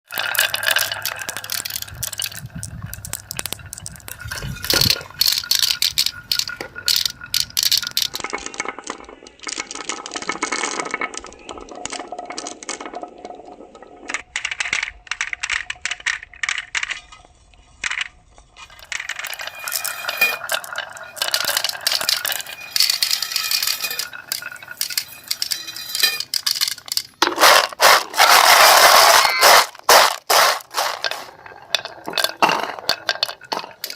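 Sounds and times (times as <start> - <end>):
small hard objects rattling: 0.1 - 17.0, 17.8 - 33.9.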